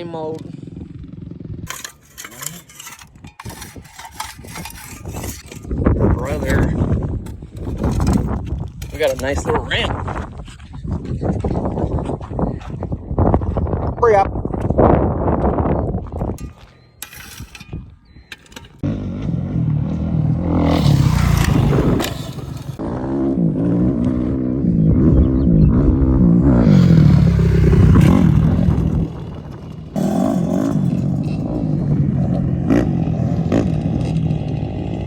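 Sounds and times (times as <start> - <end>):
dirt bike engine revving: 18.8 - 35.0.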